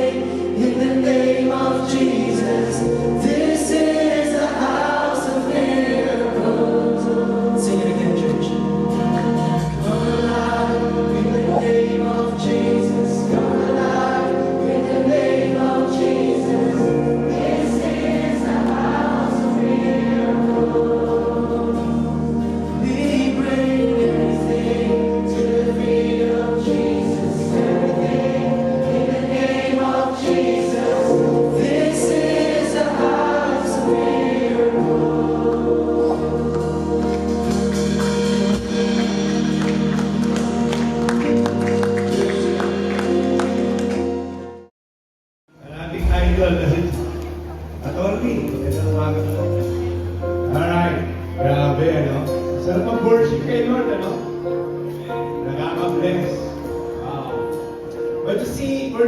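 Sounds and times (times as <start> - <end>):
group of voices singing: 0.0 - 44.3
sustained instrumental chords: 0.0 - 44.7, 45.6 - 58.3.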